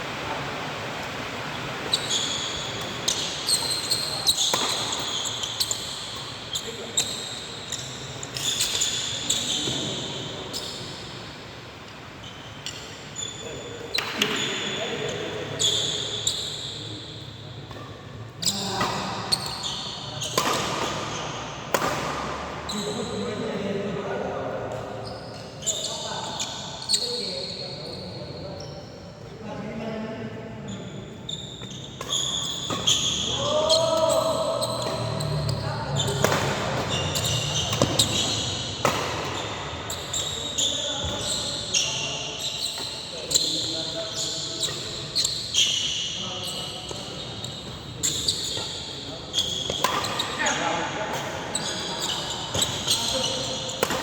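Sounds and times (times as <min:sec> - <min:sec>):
shoes squeaking on court floor: 0:01.7 - 0:11.2, 0:12.2 - 0:29.3, 0:30.6 - 0:54.0
racket hitting shuttlecock: 0:04.5 - 0:05.0, 0:20.3 - 0:21.1, 0:21.7 - 0:22.4, 0:34.7 - 0:40.1, 0:49.6 - 0:50.4, 0:53.7 - 0:54.0
racket striking shuttlecock: 0:21.7 - 0:22.3, 0:36.2 - 0:38.2, 0:49.7 - 0:50.2, 0:53.8 - 0:54.0.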